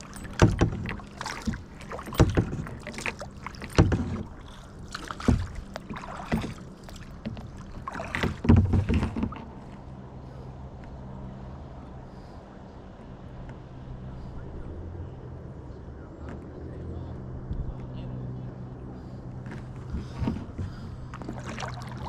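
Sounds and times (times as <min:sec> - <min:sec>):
paddle splashing in water: 0:00.0 - 0:09.9, 0:19.0 - 0:22.0.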